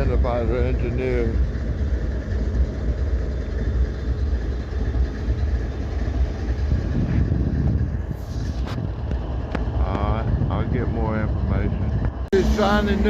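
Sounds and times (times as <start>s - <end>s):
diesel locomotive idling: 0.0s - 13.0s.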